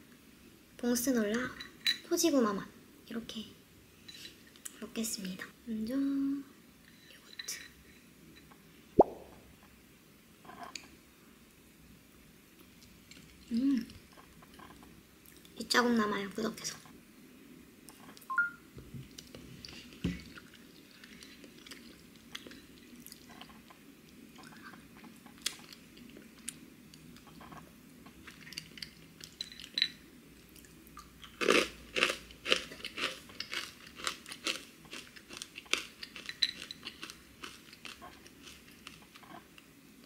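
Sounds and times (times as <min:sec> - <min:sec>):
chewing crunchy granola: 0:19.2 - 0:23.6, 0:30.5 - 0:39.6.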